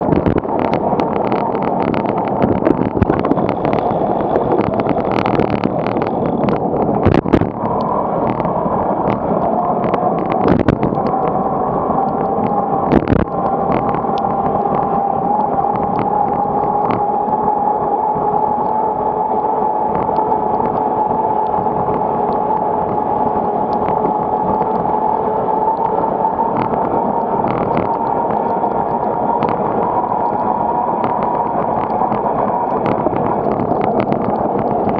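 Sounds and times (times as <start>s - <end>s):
wind rushing over microphone: 0.0s - 34.9s.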